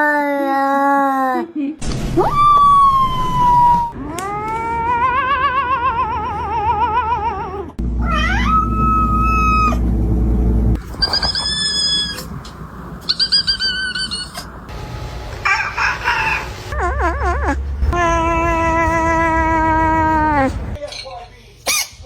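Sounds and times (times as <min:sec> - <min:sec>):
cats yowling: 0:02.4 - 0:09.8, 0:11.0 - 0:12.4, 0:13.0 - 0:14.5, 0:15.4 - 0:20.6.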